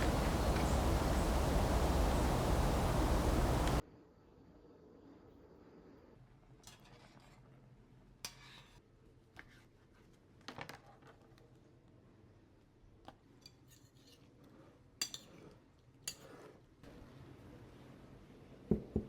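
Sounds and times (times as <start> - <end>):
low steady hum: 0.0 - 3.8.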